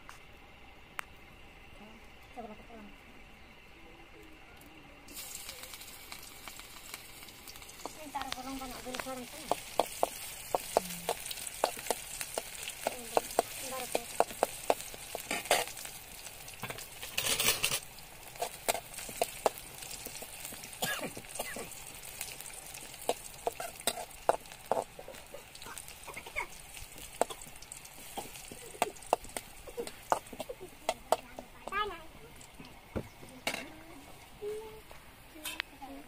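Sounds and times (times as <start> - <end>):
food sizzling in oil: 5.1 - 33.2.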